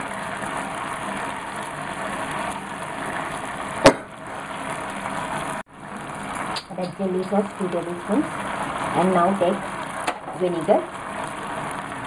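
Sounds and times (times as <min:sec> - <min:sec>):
vegetables sizzling in hot oil: 0:00.0 - 0:12.0
sharp knock: 0:03.8 - 0:04.1.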